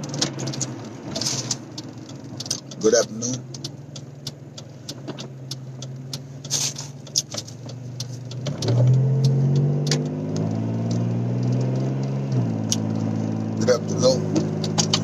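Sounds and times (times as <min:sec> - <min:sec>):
car engine humming: 0:00.0 - 0:15.0
handling clicks and knocks: 0:14.3 - 0:15.0.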